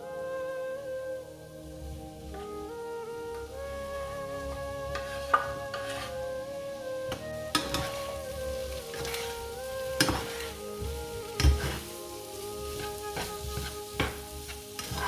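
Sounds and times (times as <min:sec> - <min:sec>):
soft background music: 0:00.0 - 0:15.0
food sizzling in a pan: 0:01.6 - 0:15.0
utensil knocking and scraping pan: 0:05.0 - 0:06.2, 0:07.1 - 0:09.4, 0:10.0 - 0:11.9, 0:12.8 - 0:15.0.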